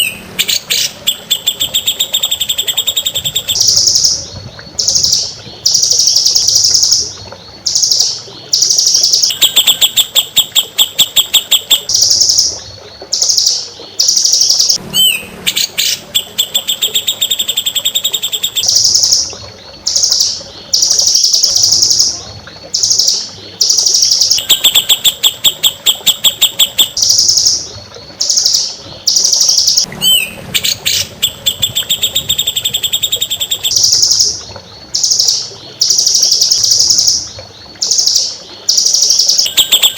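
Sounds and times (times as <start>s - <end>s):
songbird chirps and trills: 0.0s - 39.9s
sharp rising whistles: 14.9s - 18.2s, 30.0s - 33.7s.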